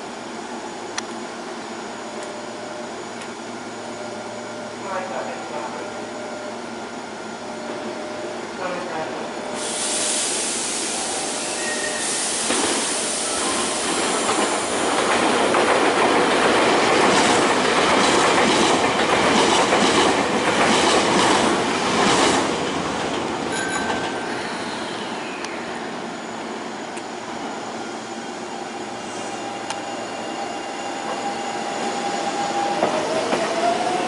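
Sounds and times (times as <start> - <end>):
train wheels clattering over rails: 12.4 - 24.2.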